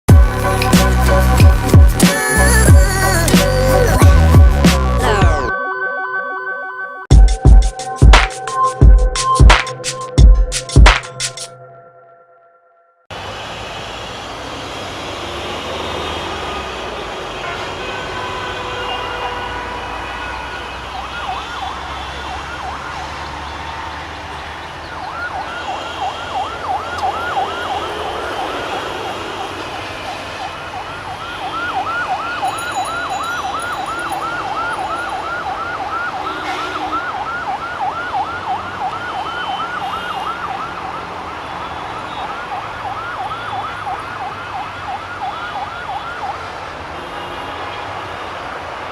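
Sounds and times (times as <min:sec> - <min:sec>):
electronic siren yelping: 0:24.9 - 0:46.5.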